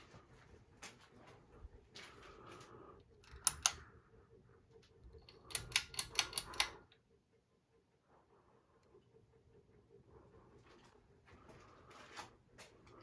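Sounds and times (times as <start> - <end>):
ceiling fan hum: 0.0 - 13.0
sharp mechanical clicks: 3.2 - 3.9, 5.2 - 6.8.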